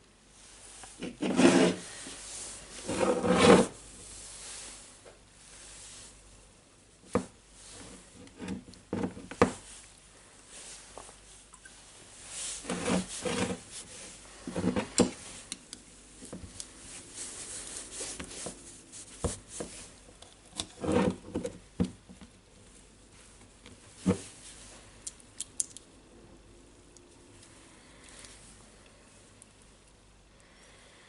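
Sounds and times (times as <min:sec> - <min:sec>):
light scraping and rubbing: 0:00.7 - 0:03.8, 0:12.2 - 0:15.5, 0:20.5 - 0:21.6.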